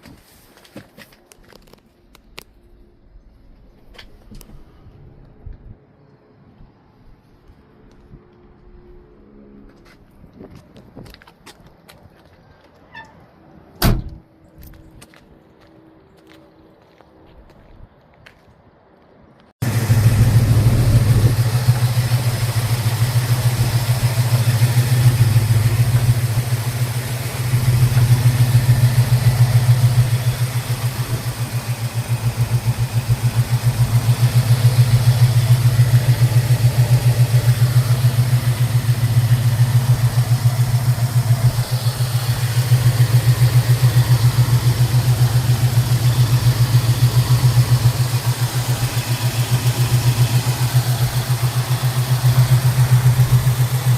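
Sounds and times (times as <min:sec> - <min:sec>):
car engine idling: 0:19.6 - 0:53.9.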